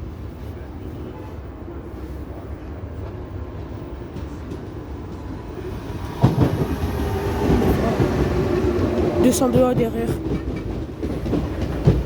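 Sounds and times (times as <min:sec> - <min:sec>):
train wheels clattering over rail joints: 0:06.0 - 0:12.0.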